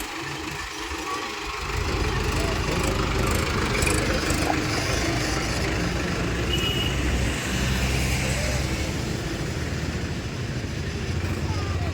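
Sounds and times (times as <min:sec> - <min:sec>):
tractor engine idling: 0:00.0 - 0:06.8.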